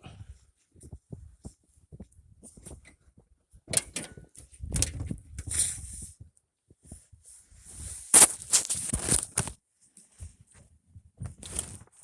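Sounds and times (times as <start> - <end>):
footsteps crunching through snow: 7.6 - 9.6
rustling: 7.8 - 9.6.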